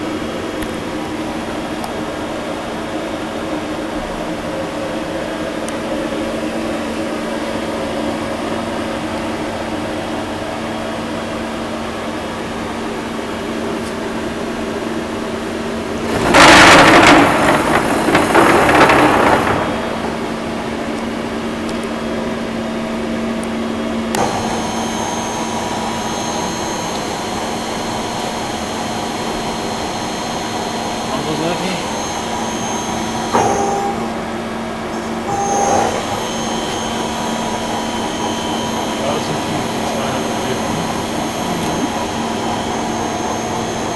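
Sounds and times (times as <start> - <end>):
industrial machinery hum: 0.0 - 43.9
high steady whines: 14.6 - 43.9.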